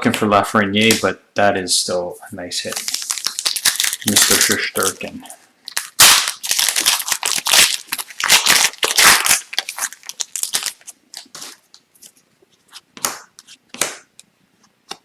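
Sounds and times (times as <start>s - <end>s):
cards being handled: 2.6s - 6.0s
plastic wrapper crinkling: 2.6s - 12.2s.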